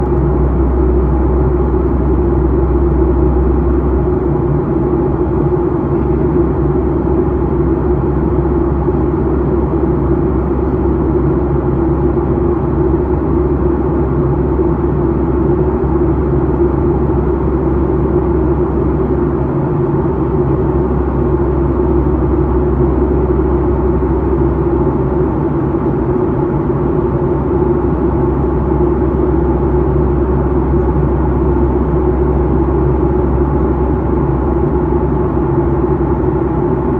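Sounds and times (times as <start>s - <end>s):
airliner cabin rumble: 0.0s - 36.9s
constant hum: 0.0s - 36.9s.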